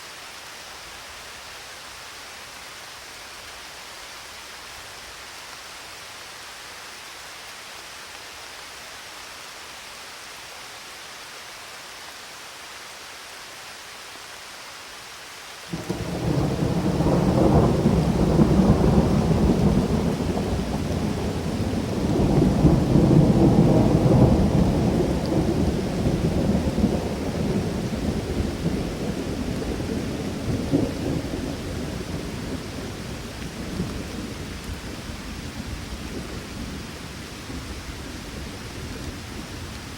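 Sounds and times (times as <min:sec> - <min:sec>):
rain falling: 0:00.0 - 0:39.9
thunder rumbling: 0:15.7 - 0:39.9.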